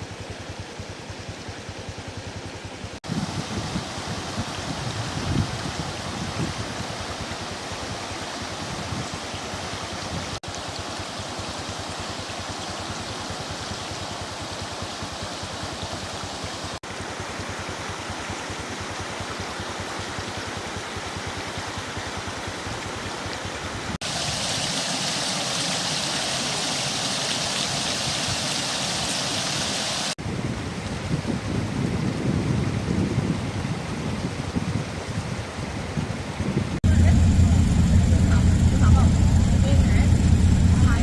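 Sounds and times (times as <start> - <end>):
rushing floodwater: 0.0 - 41.0
low rumble: 36.8 - 41.0.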